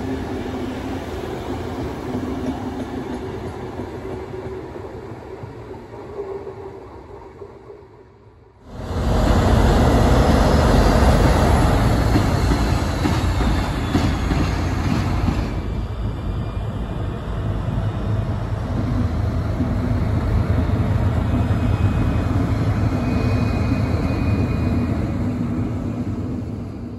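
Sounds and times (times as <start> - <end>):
train wheels rumbling: 8.7 - 26.9.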